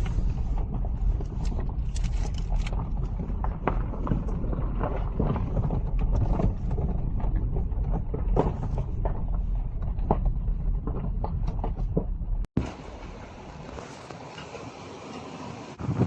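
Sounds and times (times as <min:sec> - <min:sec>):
small knocks and rattles: 0:00.0 - 0:12.5
car engine and road noise: 0:00.0 - 0:15.8.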